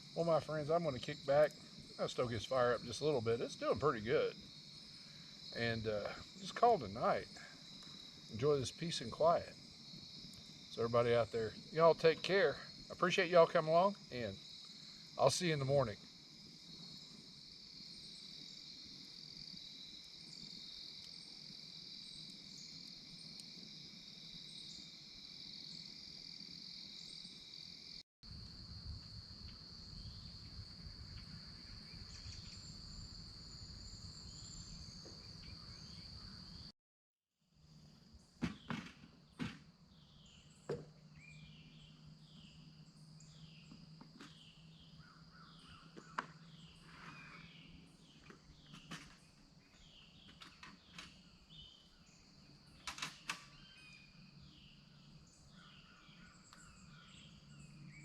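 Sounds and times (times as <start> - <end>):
night insects chirring: 0.0 - 36.7, 37.5 - 58.0
sharp knocks: 38.4 - 39.7.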